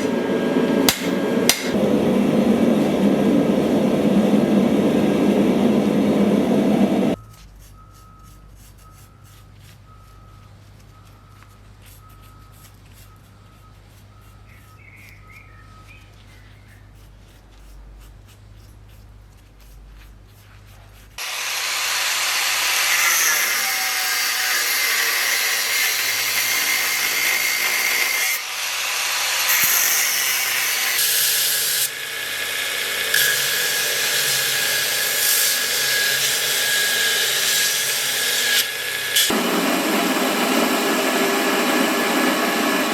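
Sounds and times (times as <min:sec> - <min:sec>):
electric grinder on steel: 0:21.2 - 0:42.9.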